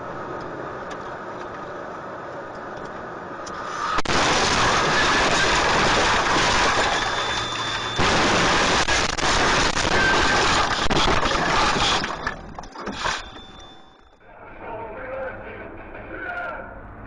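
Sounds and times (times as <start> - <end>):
vehicle road and engine noise: 0.0 - 17.0.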